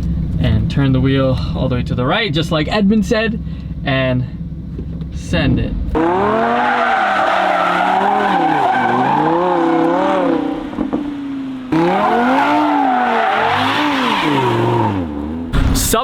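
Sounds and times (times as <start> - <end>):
car engine revving: 0.0 - 16.0
tyres squealing: 6.0 - 11.0, 11.7 - 15.0.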